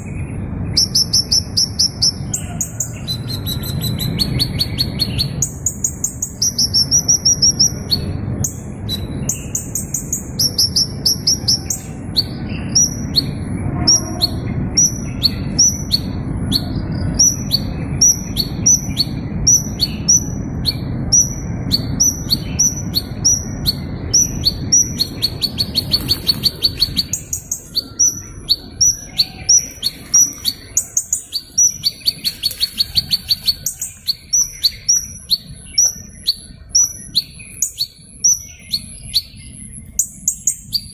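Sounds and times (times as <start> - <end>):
small bird chirping: 0.0 - 13.4, 14.2 - 40.9
bird buzzy trill: 17.6 - 36.4.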